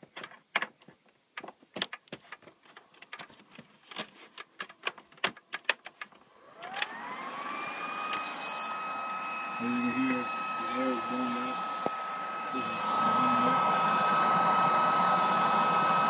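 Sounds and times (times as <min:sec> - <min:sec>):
cooling fan whine: 0:06.3 - 0:16.0.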